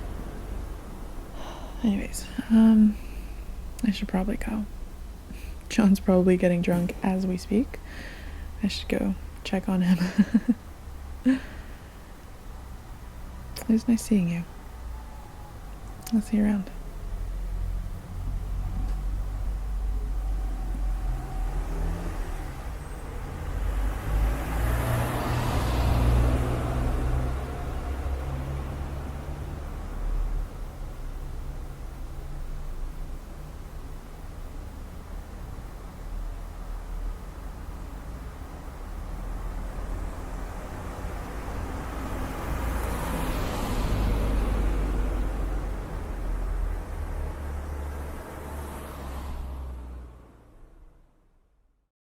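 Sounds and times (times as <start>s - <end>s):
vehicle passing: 0.0s - 3.2s, 16.6s - 51.1s
traffic rumble: 0.0s - 51.9s.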